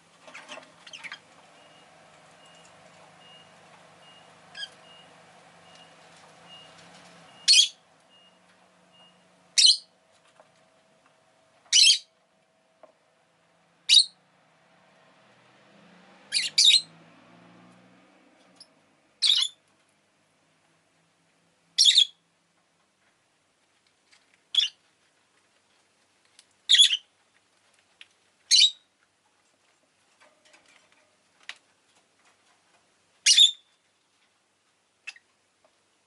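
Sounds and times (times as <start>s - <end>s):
lovebird chirping: 0.5s - 1.8s, 7.4s - 8.4s, 9.0s - 9.9s, 11.7s - 12.1s, 13.9s - 14.2s, 16.3s - 16.9s, 18.6s - 19.6s, 21.8s - 22.2s, 24.5s - 24.8s, 26.7s - 27.1s, 28.5s - 28.9s, 33.2s - 33.8s, 35.0s - 35.3s.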